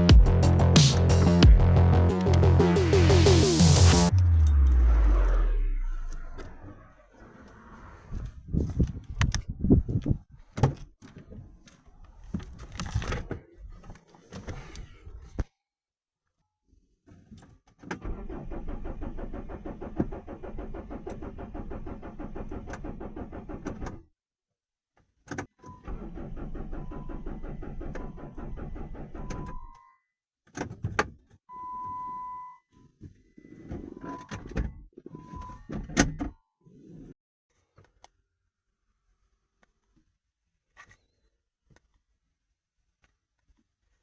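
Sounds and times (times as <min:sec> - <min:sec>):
engine starter cranking: 0:18.0 - 0:24.0, 0:25.8 - 0:29.7.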